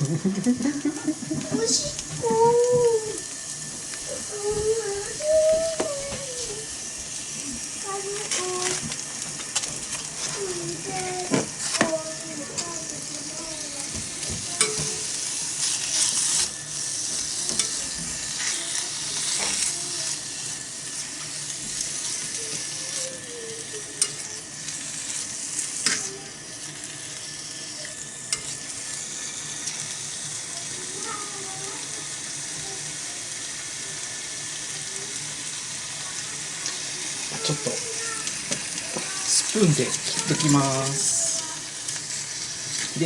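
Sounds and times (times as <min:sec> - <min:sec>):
food sizzling in a pot: 0:00.0 - 0:43.0
clicks of food being stirred: 0:00.4 - 0:28.9, 0:34.1 - 0:43.0.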